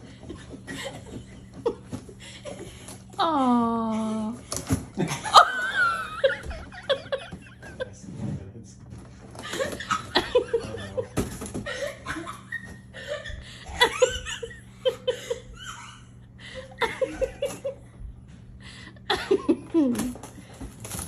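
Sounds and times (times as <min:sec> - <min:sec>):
people laughing: 0:04.9 - 0:08.0, 0:09.4 - 0:18.0, 0:18.8 - 0:20.2.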